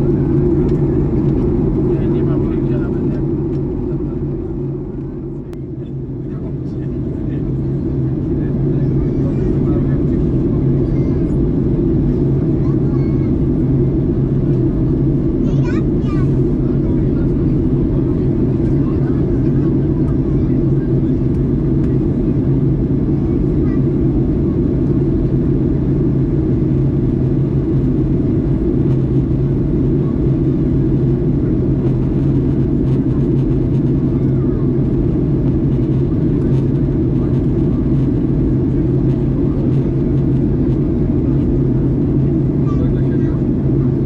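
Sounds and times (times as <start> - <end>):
aircraft cabin engine drone: 0.0 - 44.0
even hum: 0.0 - 44.0.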